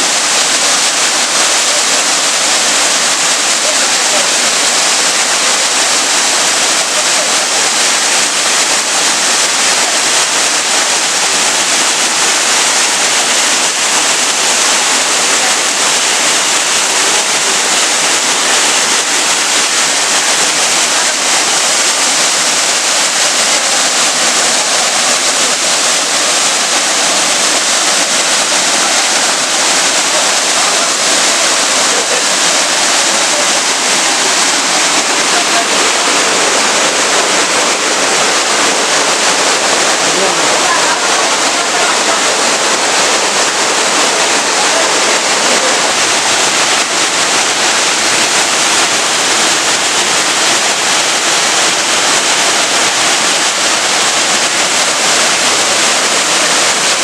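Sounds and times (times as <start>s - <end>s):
waterfall splashing: 0.0s - 57.0s.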